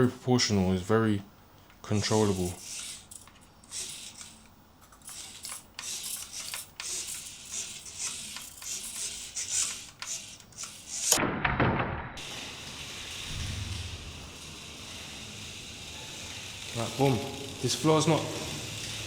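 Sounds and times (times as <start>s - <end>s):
rubber tyres scrubbing on floor: 1.9s - 4.4s, 5.2s - 11.2s
small electric motor whirring: 1.9s - 11.2s, 12.2s - 19.0s
dull burst of noise: 12.2s - 17.9s.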